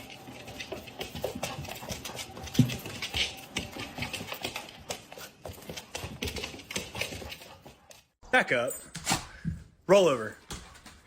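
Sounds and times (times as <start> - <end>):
dog claws clicking on hard floor: 0.0 - 8.0.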